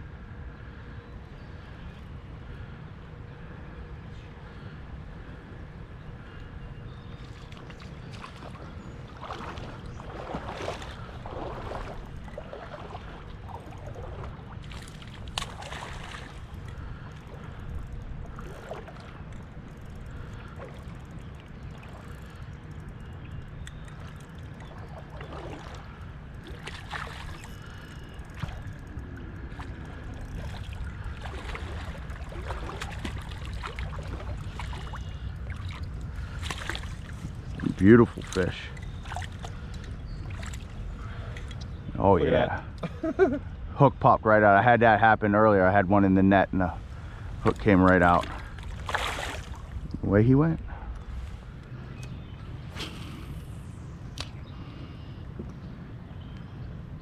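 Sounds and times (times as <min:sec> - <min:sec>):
steady low rumble: 0:00.0 - 0:57.0
water splashing against kayak: 0:07.3 - 0:41.6, 0:47.8 - 0:50.0.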